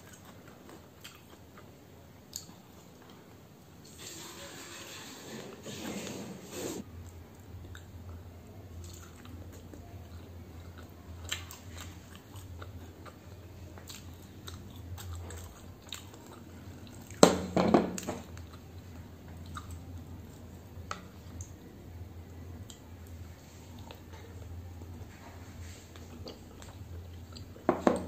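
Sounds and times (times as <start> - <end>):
chewing and wet mouth clicks: 0.0 - 1.7, 2.3 - 3.2, 8.8 - 17.2, 18.3 - 19.9, 26.0 - 27.6
low steady hum: 6.8 - 28.0.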